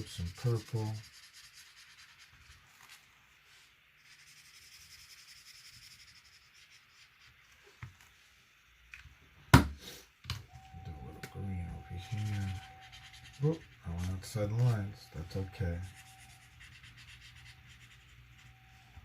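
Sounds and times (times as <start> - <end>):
drawing tool scratching paper: 0.0 - 3.1, 4.0 - 7.5, 11.4 - 18.8.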